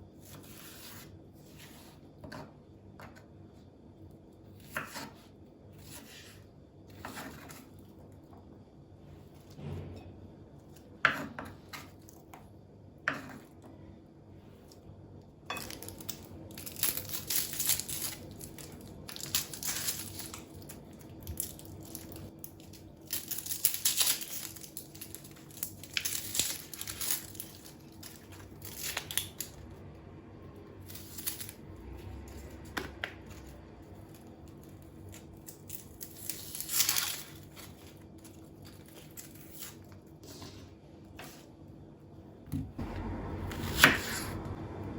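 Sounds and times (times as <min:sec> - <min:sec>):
faint steady hum: 0:00.0 - 0:44.9
crinkling and rustling handling: 0:15.6 - 0:29.6, 0:30.9 - 0:41.7.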